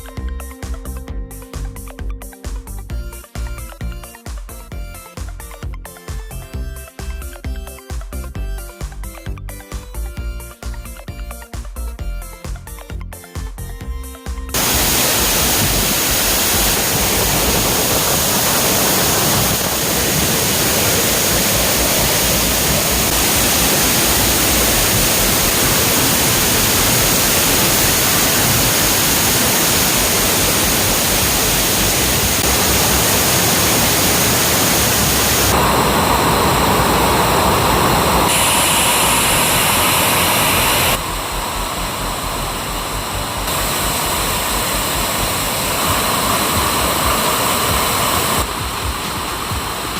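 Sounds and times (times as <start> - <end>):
waterfall rushing: 14.6 - 49.9.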